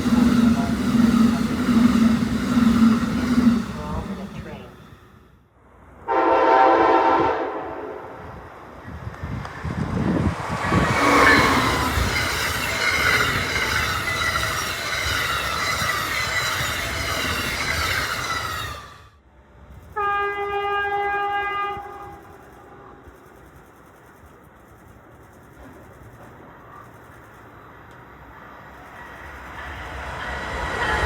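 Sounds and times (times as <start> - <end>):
train rushing past: 0.0 - 22.9, 27.7 - 31.0
train horn: 6.0 - 8.2, 10.9 - 12.1, 20.0 - 22.3.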